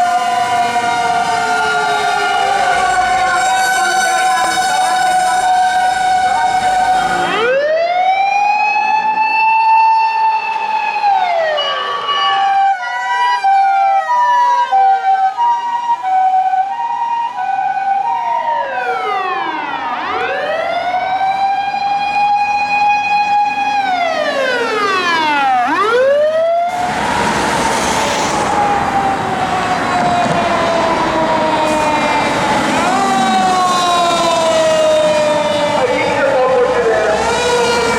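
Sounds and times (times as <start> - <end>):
passing vehicle road noise: 0.0 - 7.5, 19.6 - 26.0, 26.7 - 37.9
electronic wailing siren: 0.0 - 37.9
two-tone siren: 0.0 - 37.9.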